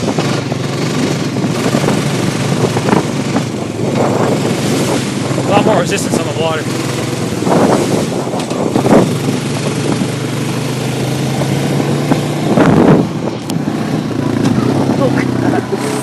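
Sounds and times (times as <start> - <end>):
atv engine running: 0.0 - 16.0
rushing surges of noise: 0.0 - 16.0.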